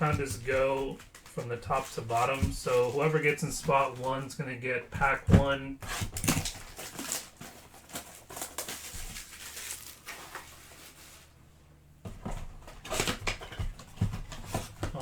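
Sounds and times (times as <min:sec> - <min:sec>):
foil wrappers crinkling: 0:00.0 - 0:11.4.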